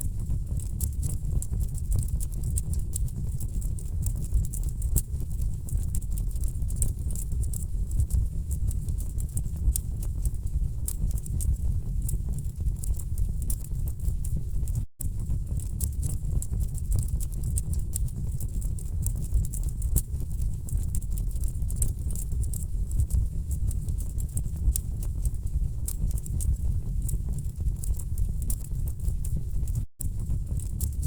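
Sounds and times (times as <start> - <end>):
low rumble of flames: 0.0 - 31.0.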